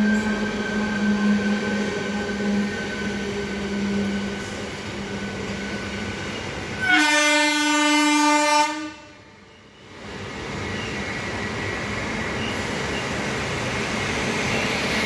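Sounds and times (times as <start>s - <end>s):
train rumbling: 0.0s - 15.0s
locomotive horn blast: 6.8s - 9.2s.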